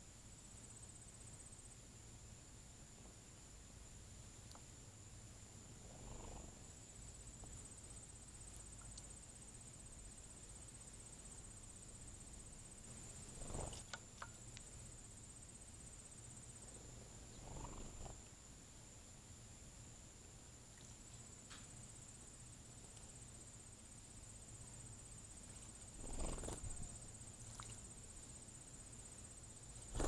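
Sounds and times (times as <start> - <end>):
high-pitched insect song: 3.4 - 30.0
insect fast pulsing trill: 5.8 - 18.3, 23.2 - 30.0.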